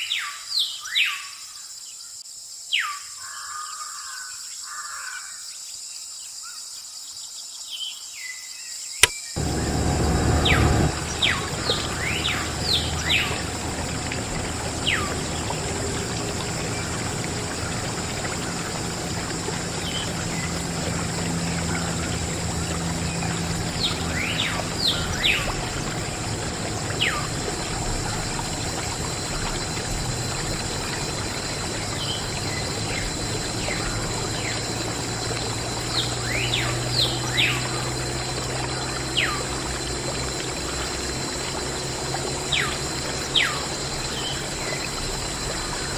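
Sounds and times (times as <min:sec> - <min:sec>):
bird chirps: 0:09.4 - 0:34.9
water pouring and trickling: 0:09.4 - 0:45.9.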